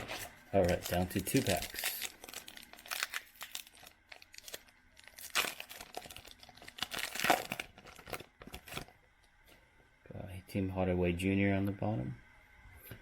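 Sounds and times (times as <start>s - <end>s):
card pack wrapper tearing: 0.0s - 8.9s.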